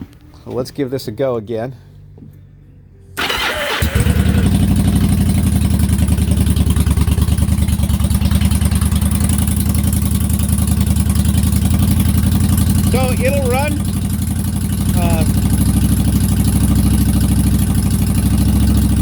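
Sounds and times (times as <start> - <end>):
starter motor cranking: 3.2 - 5.7, 11.5 - 15.4
motorcycle engine idling: 3.2 - 19.0.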